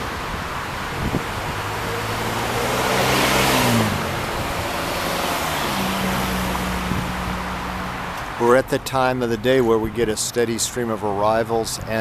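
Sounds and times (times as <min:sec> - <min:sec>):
wind noise: 0:00.0 - 0:08.4
car passing by: 0:00.0 - 0:08.6
low engine hum: 0:00.0 - 0:12.0.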